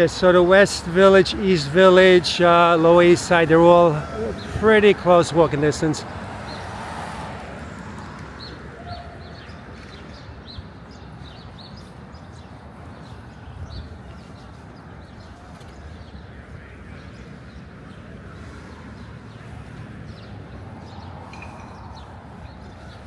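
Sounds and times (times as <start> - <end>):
low street rumble: 0.0 - 23.0
small birds chirping: 8.0 - 23.0.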